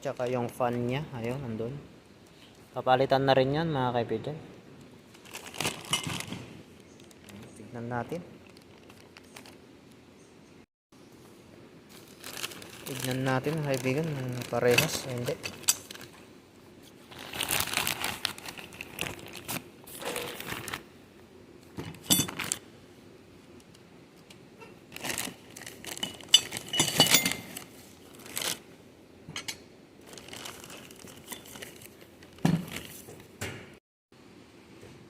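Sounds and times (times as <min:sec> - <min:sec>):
plastic packaging crinkling: 0:05.1 - 0:07.6, 0:08.3 - 0:09.6, 0:11.9 - 0:16.2, 0:16.8 - 0:20.9, 0:22.2 - 0:22.6, 0:24.9 - 0:28.7, 0:30.0 - 0:33.1.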